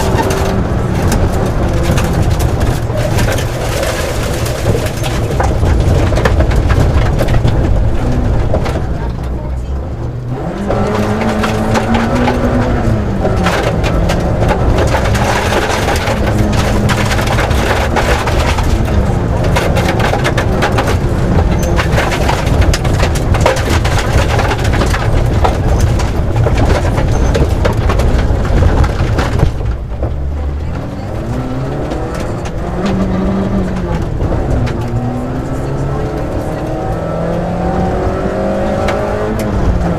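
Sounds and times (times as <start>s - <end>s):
rally car engine pulling hard: 0.0s - 39.9s
stones striking car: 10.6s - 35.2s.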